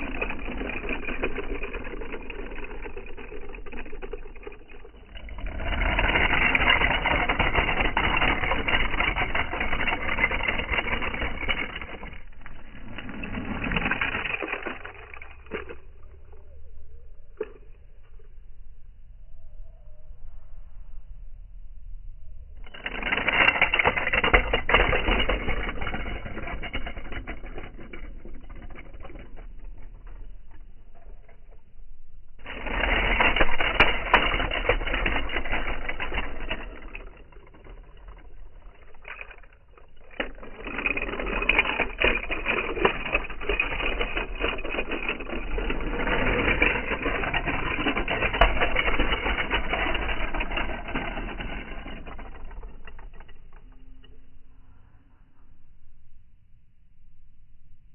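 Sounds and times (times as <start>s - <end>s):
toy cars rattling and clattering: 0.0s - 18.3s, 22.6s - 54.6s.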